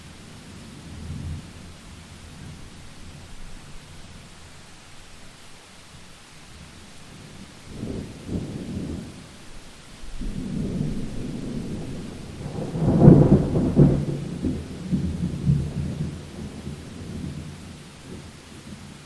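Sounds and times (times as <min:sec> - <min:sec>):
rain hiss: 0:00.0 - 0:19.0
thunder rumbling: 0:06.5 - 0:18.7.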